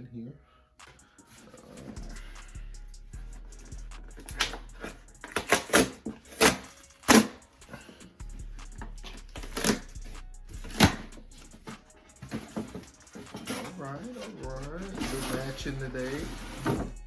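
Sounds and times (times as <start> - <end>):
paper rustling and crinkling: 10.6 - 16.8.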